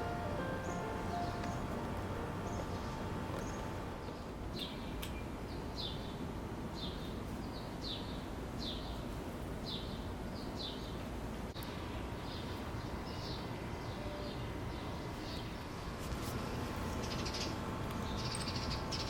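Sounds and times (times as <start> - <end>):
bird chirping: 0.0 - 6.0, 16.9 - 19.0
low background hum: 0.0 - 19.0.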